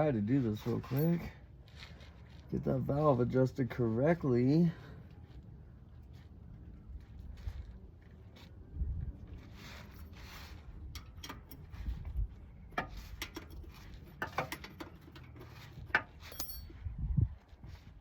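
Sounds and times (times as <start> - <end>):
metal tools clicking and clinking: 0.7 - 1.3, 11.0 - 11.8, 12.8 - 16.8.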